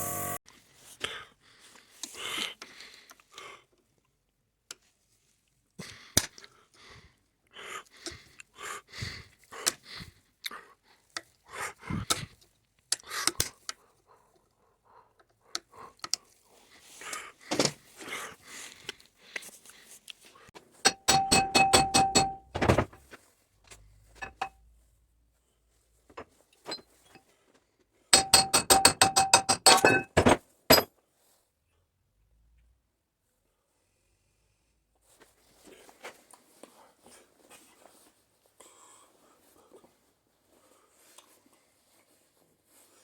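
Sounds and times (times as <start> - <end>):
hands handling tools and parts: 19.4 - 24.6, 28.2 - 31.0.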